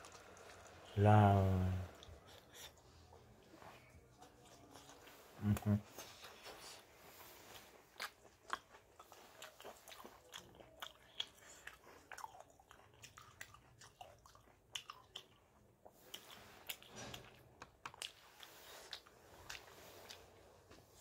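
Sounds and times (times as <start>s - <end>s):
person chewing crunchy food: 0.0s - 0.8s, 7.5s - 21.0s.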